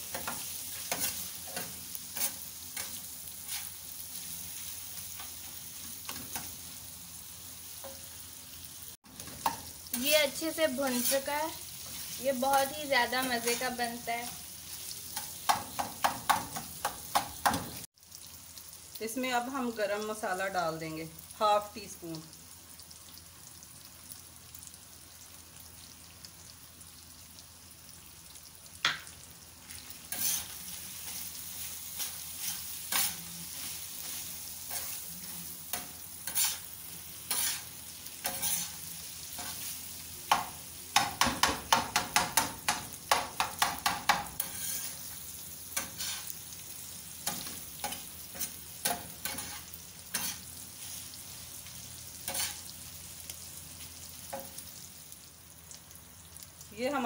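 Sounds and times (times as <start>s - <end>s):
meat sizzling on griddle: 0.0s - 57.0s
metal spatula scraping and tapping: 0.1s - 3.7s, 30.1s - 31.2s, 32.0s - 35.0s, 35.7s - 36.6s, 37.3s - 38.8s, 40.3s - 45.0s, 47.2s - 50.5s, 52.3s - 52.7s.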